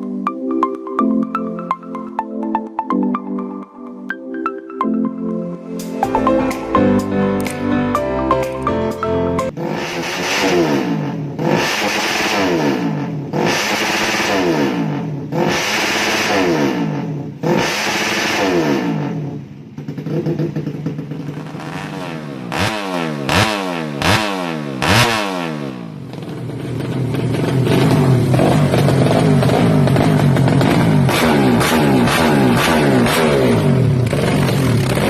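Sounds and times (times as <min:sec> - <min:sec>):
motorcycle engine revving: 0:09.5 - 0:35.0.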